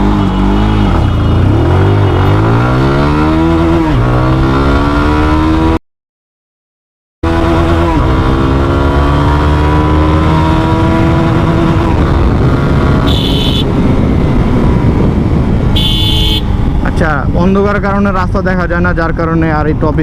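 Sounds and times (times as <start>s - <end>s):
motorcycle engine accelerating: 0.0s - 5.8s, 7.2s - 16.9s
wind noise: 9.9s - 20.0s.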